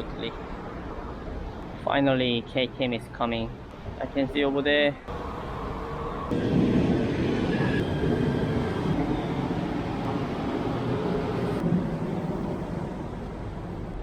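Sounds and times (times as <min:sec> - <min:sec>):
train arriving rumble: 0:05.1 - 0:14.0.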